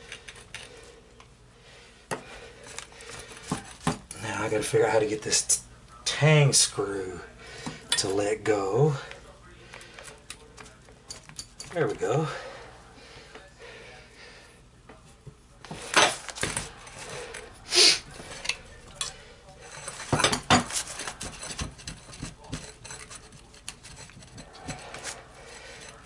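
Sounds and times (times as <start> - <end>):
metal and wood knocks and clinks: 18.2 - 26.0.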